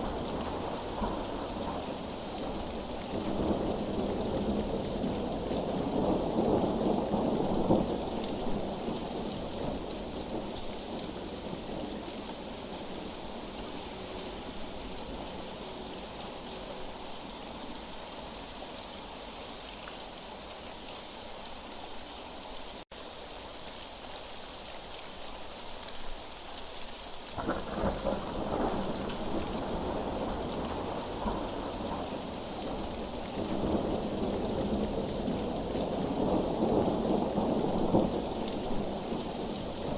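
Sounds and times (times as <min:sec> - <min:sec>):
steady rain: 0:00.0 - 0:39.9
rolling thunder: 0:27.4 - 0:39.9.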